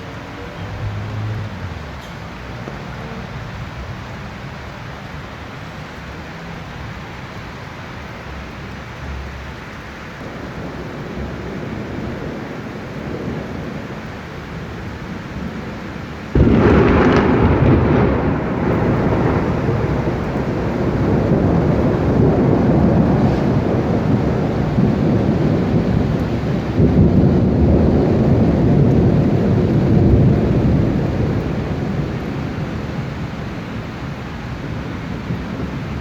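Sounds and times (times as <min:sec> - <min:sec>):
thunder rumbling: 0:00.0 - 0:04.7, 0:10.0 - 0:36.0
rain hiss: 0:00.0 - 0:36.0.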